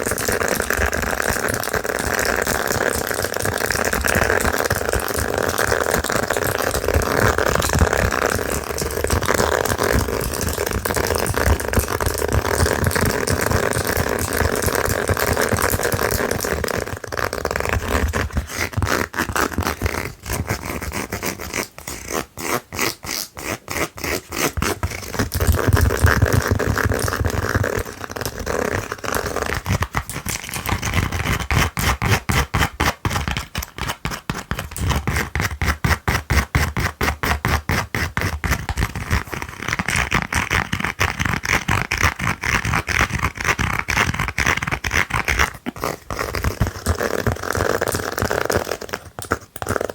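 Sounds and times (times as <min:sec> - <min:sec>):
fingernails scratching a slipper: 0:00.0 - 0:49.9.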